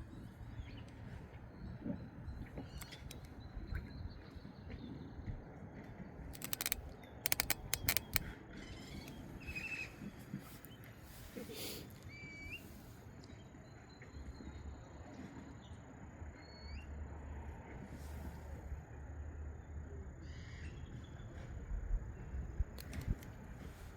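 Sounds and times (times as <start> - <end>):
sharp clicks: 2.8 - 3.4, 6.3 - 8.3, 22.8 - 23.4.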